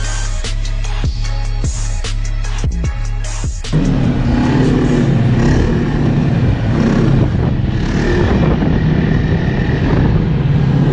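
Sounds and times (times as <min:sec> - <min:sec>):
snowmobile engine running: 0:03.7 - 0:10.9.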